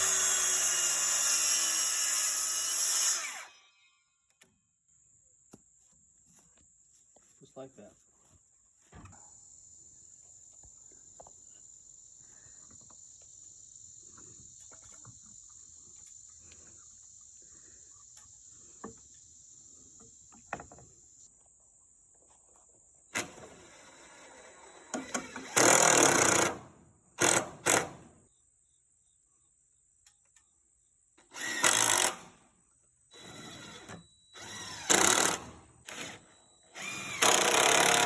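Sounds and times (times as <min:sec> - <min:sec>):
insects chirring: 0:04.9 - 0:26.4
cordless power tool running: 0:36.8 - 0:38.0.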